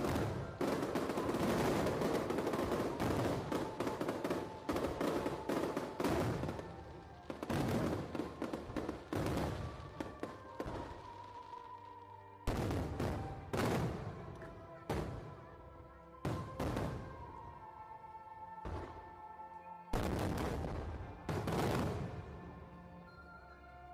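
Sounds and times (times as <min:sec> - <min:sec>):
fireworks crackling and banging: 0:00.0 - 0:15.3, 0:16.2 - 0:17.5, 0:20.0 - 0:22.4.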